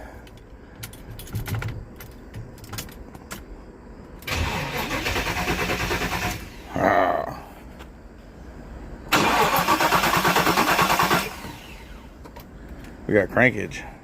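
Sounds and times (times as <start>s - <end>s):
starter motor cranking engine: 4.3s - 6.6s, 9.1s - 12.0s.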